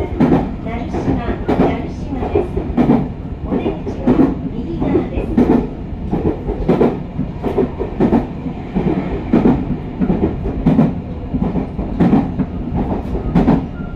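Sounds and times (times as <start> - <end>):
train rumbling along track: 0.0 - 13.9.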